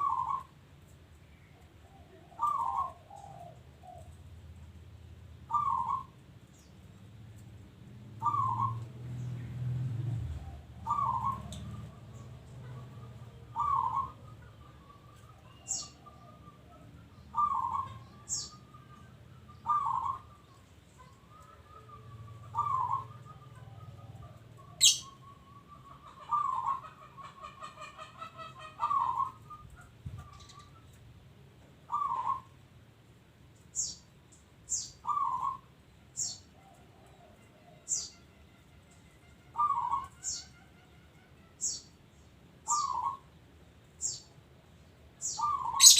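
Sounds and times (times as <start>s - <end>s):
dove cooing: 0.0s - 0.5s, 1.7s - 4.2s, 5.5s - 6.2s, 8.2s - 8.9s, 10.3s - 30.9s, 31.9s - 32.6s, 35.0s - 35.7s, 39.5s - 40.4s, 42.7s - 43.3s, 45.4s - 45.9s.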